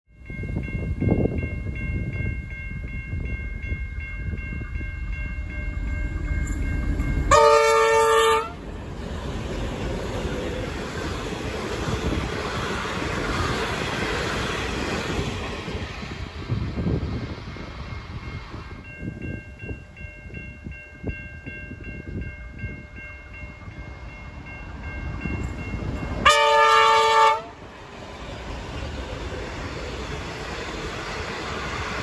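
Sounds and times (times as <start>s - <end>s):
train engine and wheel noise: 0.1s - 32.0s
train horn blast: 7.3s - 8.7s, 26.2s - 27.6s.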